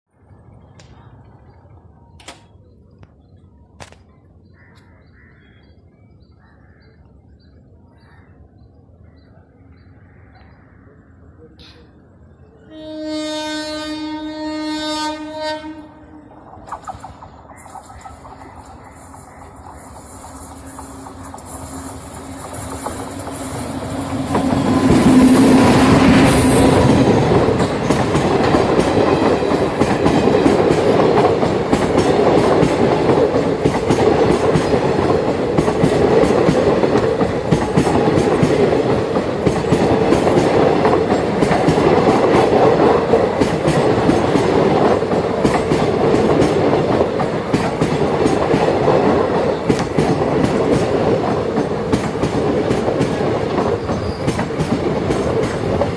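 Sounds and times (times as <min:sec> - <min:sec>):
train passing at speed: 0:10.8 - 0:55.9
train wheels clickety-clack: 0:16.6 - 0:55.9.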